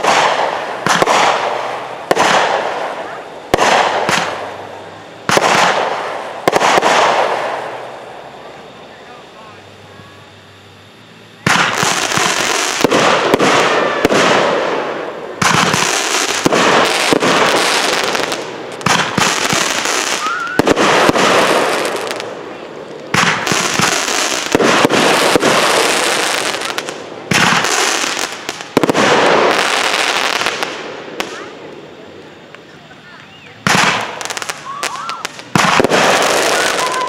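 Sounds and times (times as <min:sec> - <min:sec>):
fireworks crackling and popping: 0:00.0 - 0:37.0.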